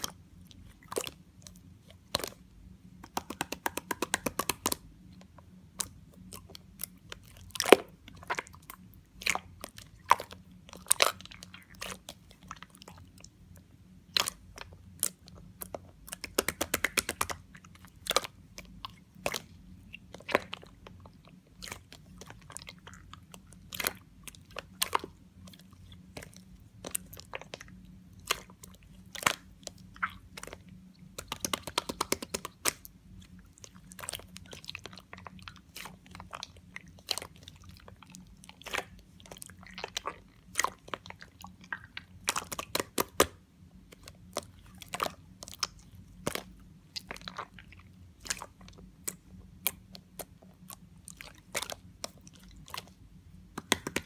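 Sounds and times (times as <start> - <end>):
slime wet clicks and pops: 16.2 - 17.4, 31.2 - 32.9, 53.6 - 54.0.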